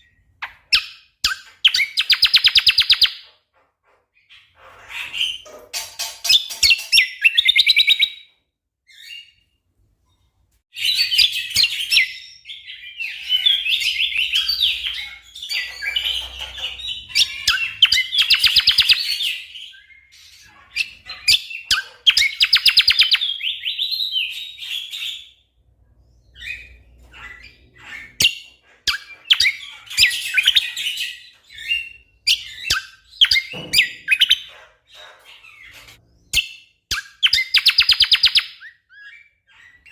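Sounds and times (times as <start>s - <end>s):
bird singing rapid chattering notes: 11.0s - 25.3s.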